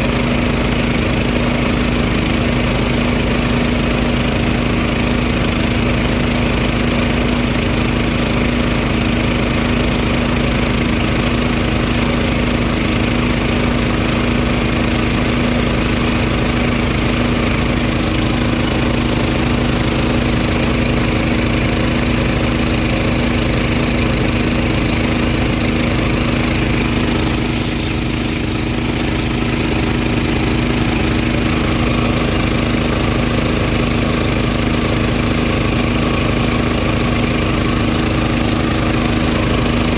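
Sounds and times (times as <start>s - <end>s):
small gasoline engine running: 0.0s - 39.9s
brief high-pitched noise: 27.3s - 29.4s.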